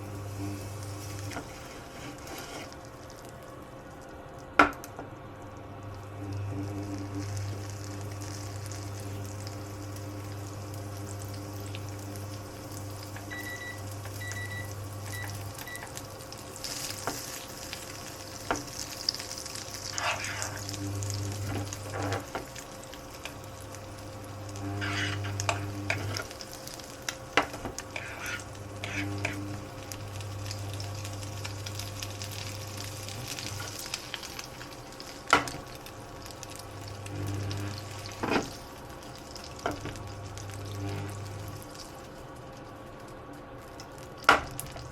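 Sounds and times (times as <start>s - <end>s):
food sizzling in a frying pan: 0.0s - 44.9s
low electrical hum: 0.0s - 44.9s
appliance beeps: 13.2s - 16.0s.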